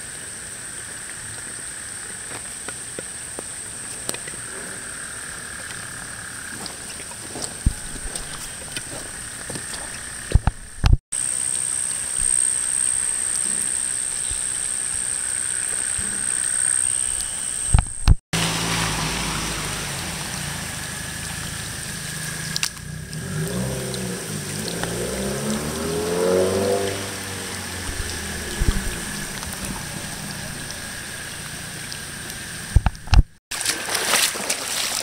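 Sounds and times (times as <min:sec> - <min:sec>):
vehicle engine running: 0:17.9 - 0:33.4
rain on wet pavement: 0:18.4 - 0:33.2.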